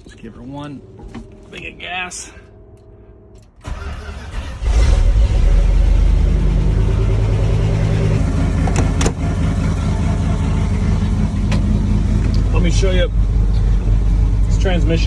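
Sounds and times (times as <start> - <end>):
pickup engine starting and idling: 3.4 - 15.0.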